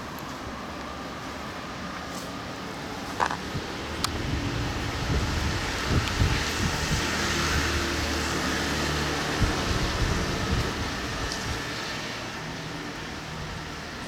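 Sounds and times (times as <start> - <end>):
strong wind blowing: 3.4 - 11.7
wind buffeting microphone: 3.4 - 11.7.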